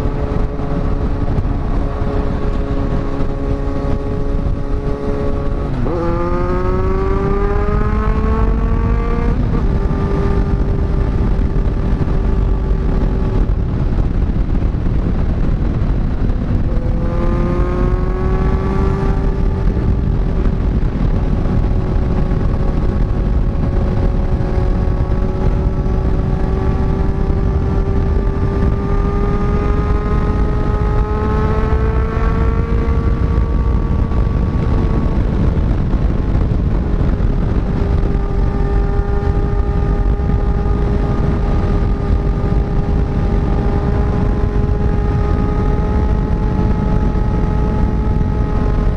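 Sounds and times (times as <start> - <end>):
motorcycle engine accelerating: 0.0 - 48.9
wind rumble on microphone: 0.0 - 48.9.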